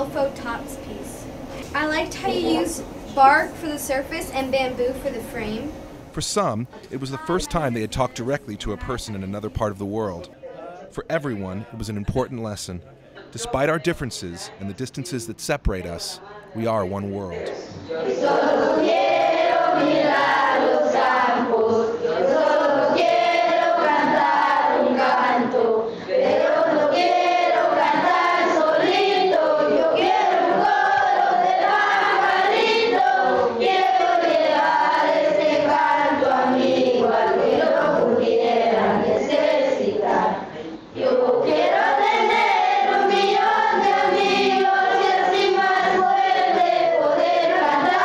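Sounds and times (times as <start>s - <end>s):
children's choir singing: 16.7s - 48.0s.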